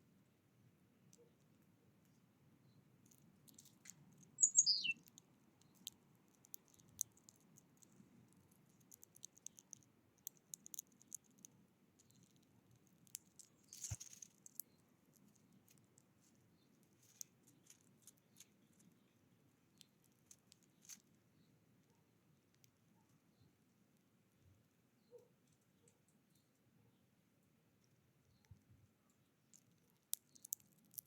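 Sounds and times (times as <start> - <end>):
songbird call falling in pitch: 4.4 - 5.0.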